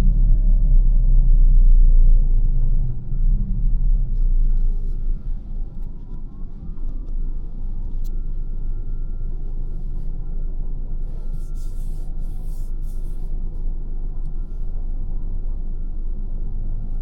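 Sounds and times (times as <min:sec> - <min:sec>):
road and tyre rumble in car: 0:00.0 - 0:17.0
faint thin whine: 0:04.2 - 0:17.0.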